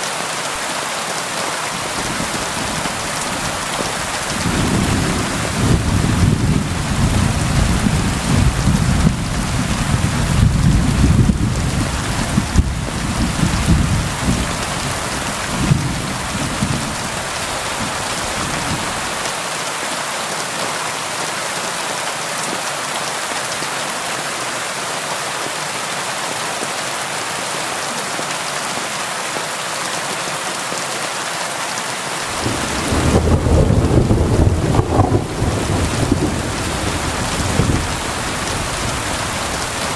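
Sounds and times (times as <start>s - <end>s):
rain on a window: 0.4s - 19.6s, 32.2s - 39.9s
thunder rumbling: 1.8s - 19.2s, 32.3s - 39.9s.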